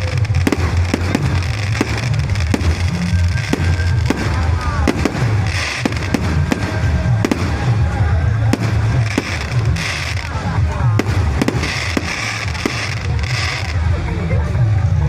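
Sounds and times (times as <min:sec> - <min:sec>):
firework whistle: 0:00.0 - 0:07.7
fireworks bangs and pops: 0:00.0 - 0:13.9
steady low rumble: 0:00.0 - 0:15.0.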